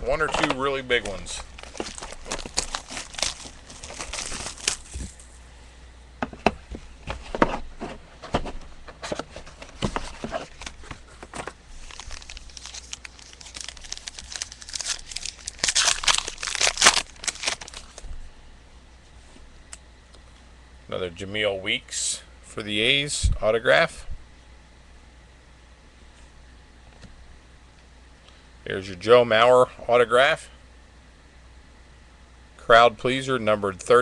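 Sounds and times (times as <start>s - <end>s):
plastic packaging crinkling and tearing: 0.1s - 5.4s, 9.6s - 18.1s.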